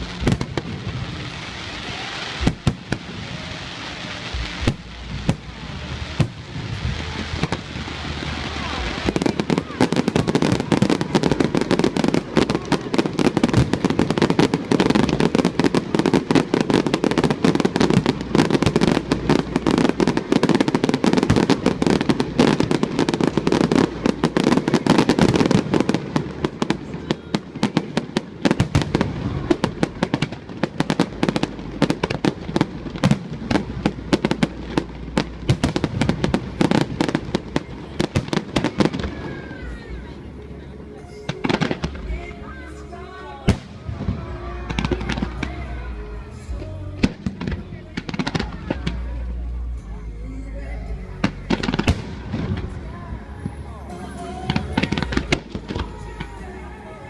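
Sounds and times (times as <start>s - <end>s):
fireworks bangs and crackles: 0.0s - 50.0s, 50.6s - 57.0s.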